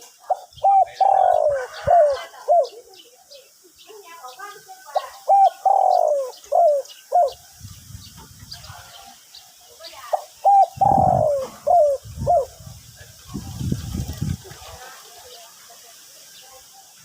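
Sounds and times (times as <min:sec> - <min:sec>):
small birds chirping: 0:00.0 - 0:17.0
dove cooing: 0:00.3 - 0:03.4, 0:04.9 - 0:07.4, 0:10.1 - 0:12.7.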